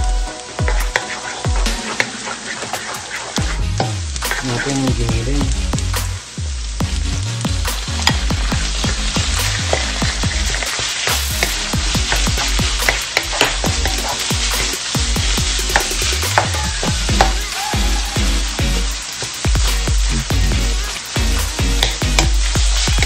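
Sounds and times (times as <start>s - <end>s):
meat sizzling in oil: 0.0s - 23.0s
spatula scraping pan: 0.5s - 4.9s, 8.0s - 18.3s.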